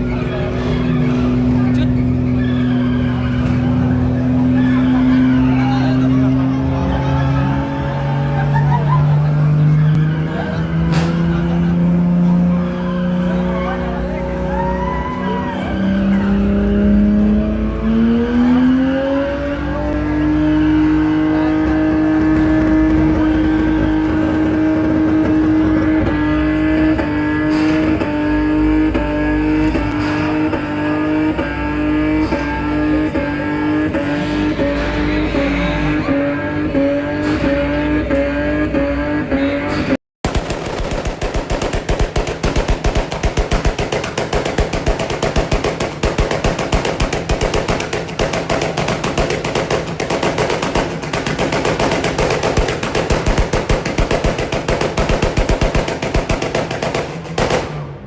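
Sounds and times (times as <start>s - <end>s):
tyres squealing: 0.0s - 5.7s
car engine revving: 0.0s - 58.0s
sharp exhaust pops: 40.2s - 58.0s.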